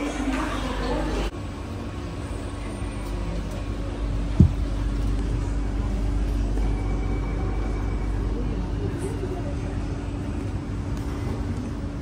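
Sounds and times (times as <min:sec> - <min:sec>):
low hum inside train car: 0:00.0 - 0:12.0
dull thump: 0:04.4 - 0:04.7.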